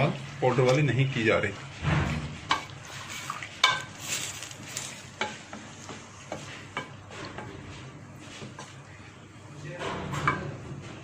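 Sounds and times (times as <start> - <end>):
utensil scraping and knocking on pan: 1.8 - 8.8
chicken and onion sizzling in oil: 2.3 - 7.5.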